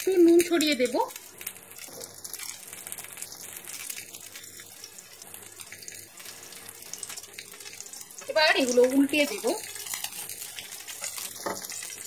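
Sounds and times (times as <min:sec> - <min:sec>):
peppers sizzling in oil: 0:00.0 - 0:12.0.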